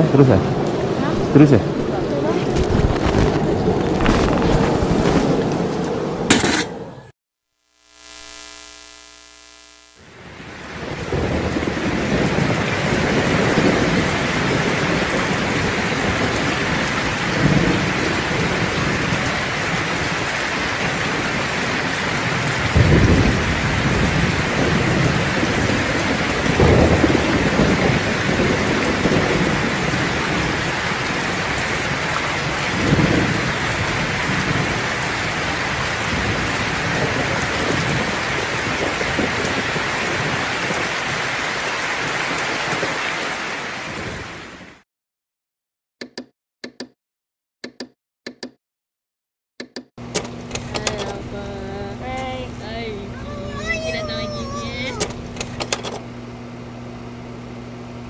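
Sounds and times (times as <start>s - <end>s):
heavy rain falling: 0.0s - 6.2s, 10.0s - 44.8s, 50.2s - 56.0s
low rolls of thunder: 10.4s - 41.3s.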